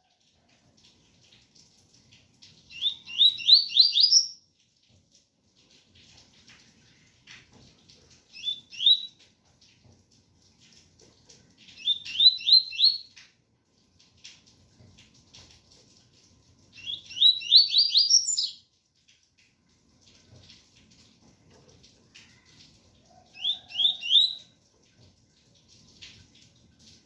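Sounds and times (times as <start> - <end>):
bird singing whistled notes: 2.7 - 4.4, 8.4 - 9.2, 11.8 - 13.1, 16.8 - 18.6, 23.4 - 24.4.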